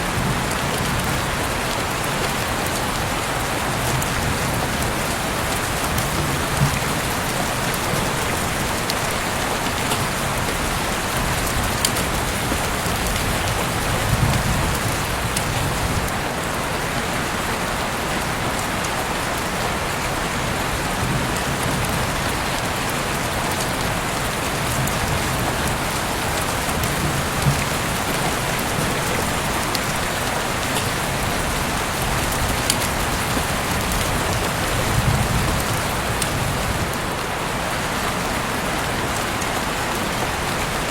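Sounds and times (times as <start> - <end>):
heavy rain falling: 0.0 - 40.9
raindrop ticks: 0.2 - 16.6, 21.1 - 37.0.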